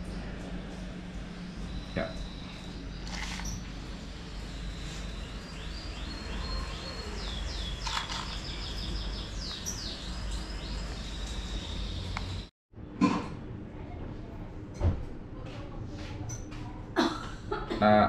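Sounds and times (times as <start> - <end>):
low steady hum: 0.0 - 17.8
small bird chirping: 1.5 - 12.5.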